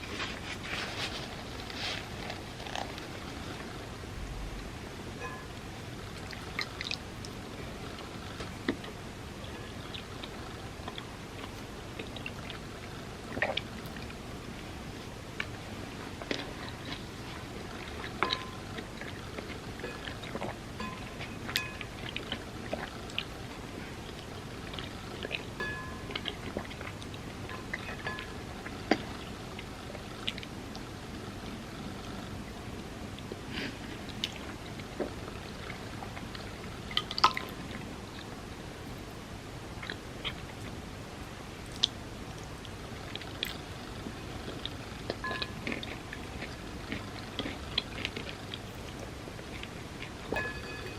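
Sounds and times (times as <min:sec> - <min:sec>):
steady low hiss: 0:00.0 - 0:50.9
wet chewing clicks: 0:01.6 - 0:03.9, 0:15.4 - 0:32.4, 0:39.8 - 0:40.8, 0:41.6 - 0:50.3.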